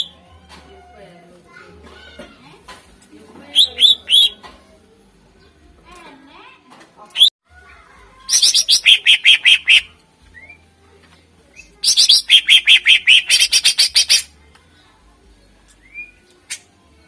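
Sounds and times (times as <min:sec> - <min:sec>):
bird singing rapid sharp notes: 0:03.5 - 0:04.4, 0:08.3 - 0:10.6, 0:11.8 - 0:14.3
bird upslurred notes: 0:03.5 - 0:04.4, 0:08.3 - 0:10.6, 0:11.8 - 0:14.3.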